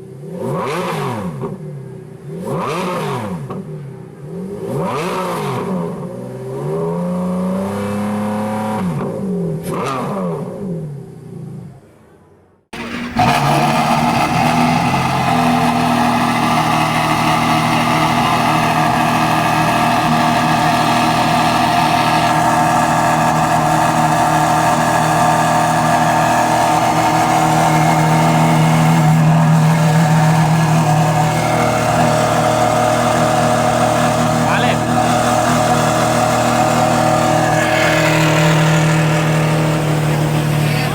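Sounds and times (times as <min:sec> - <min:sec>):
car engine running steadily: 0:12.8 - 0:40.9.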